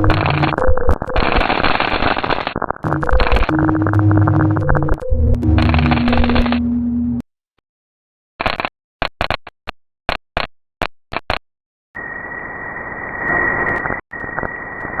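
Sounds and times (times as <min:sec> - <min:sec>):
high steady tone: 0:00.0 - 0:01.3, 0:02.8 - 0:07.2
chopped audio bursts: 0:00.0 - 0:07.2.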